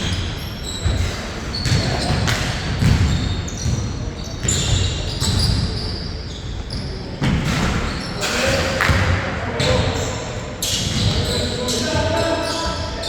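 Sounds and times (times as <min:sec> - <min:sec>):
sneaker squeaks: 0:00.0 - 0:13.0
basketball bouncing on court: 0:00.8 - 0:05.8, 0:06.6 - 0:12.8.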